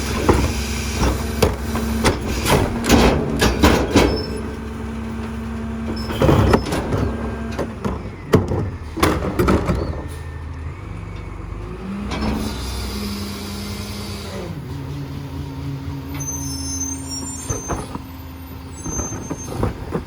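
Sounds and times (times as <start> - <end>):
loud bangs and clattering: 0.0 - 5.3
garbage truck diesel engine: 0.0 - 20.0.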